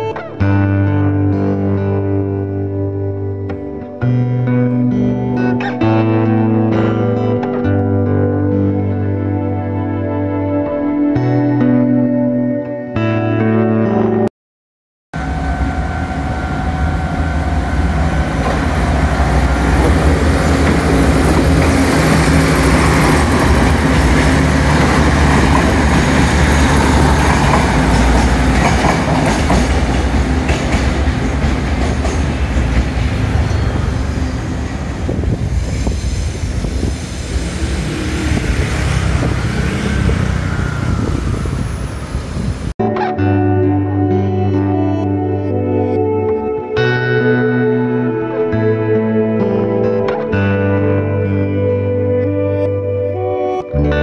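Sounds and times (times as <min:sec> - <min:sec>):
train rumble on rails: 0:15.2 - 0:42.7.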